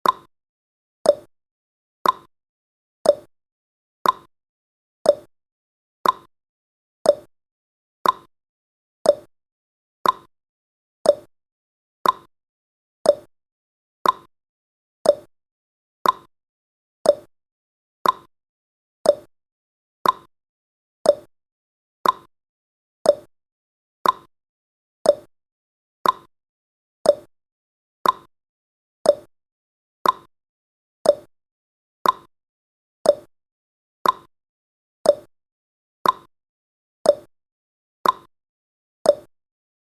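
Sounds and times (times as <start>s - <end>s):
clock ticking tick-tock: 0.0s - 0.3s, 1.0s - 1.3s, 2.0s - 2.3s, 3.0s - 3.3s, 4.0s - 4.3s, 5.0s - 5.3s, 6.0s - 6.3s, 7.0s - 7.3s, 8.0s - 8.3s, 9.0s - 9.3s, 10.0s - 10.3s, 11.0s - 11.3s, 12.0s - 12.3s, 13.0s - 13.3s, 14.0s - 14.3s, 15.0s - 15.3s, 16.0s - 16.3s, 17.0s - 17.3s, 18.0s - 18.3s, 19.0s - 19.3s, 20.0s - 20.3s, 21.0s - 21.3s, 22.0s - 22.3s, 23.0s - 23.3s, 24.0s - 24.3s, 25.0s - 25.3s, 26.0s - 26.3s, 27.0s - 27.3s, 28.0s - 28.3s, 29.0s - 29.3s, 30.0s - 30.3s, 31.0s - 31.3s, 32.0s - 32.3s, 33.0s - 33.3s, 34.0s - 34.3s, 35.0s - 35.3s, 36.0s - 36.3s, 37.0s - 37.3s, 38.0s - 38.3s, 39.0s - 39.4s.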